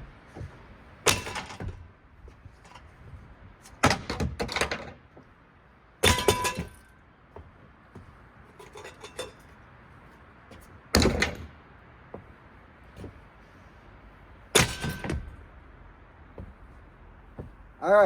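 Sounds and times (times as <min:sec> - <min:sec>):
small knocks and rattles: 0:00.0 - 0:05.3, 0:06.0 - 0:13.2, 0:16.2 - 0:17.7.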